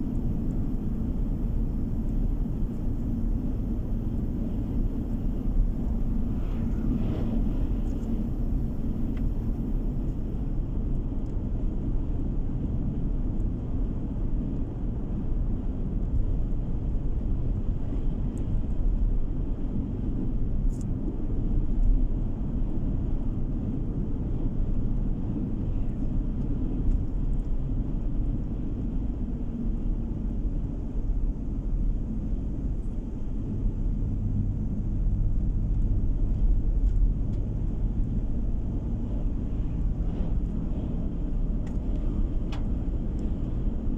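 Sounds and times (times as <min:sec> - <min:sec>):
car driving interior rumble: 0:26.2 - 0:43.9.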